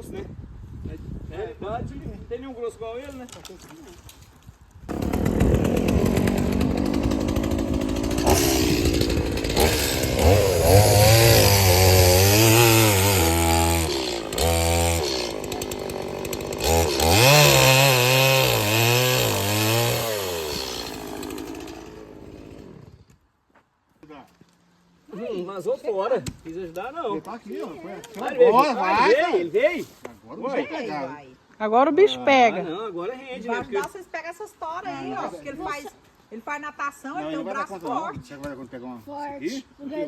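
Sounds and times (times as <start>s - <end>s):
chainsaw cutting wood: 4.9s - 23.2s.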